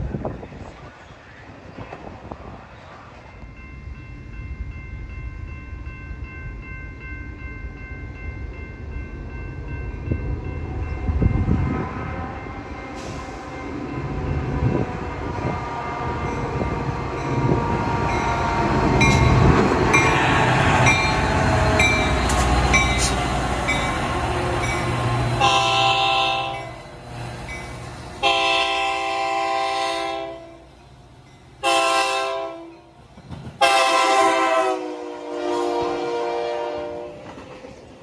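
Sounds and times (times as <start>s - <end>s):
train wheels rumbling on rail: 0.0s - 38.0s
train horn blasts: 25.3s - 26.8s, 28.2s - 30.7s, 31.6s - 32.9s, 33.6s - 37.3s.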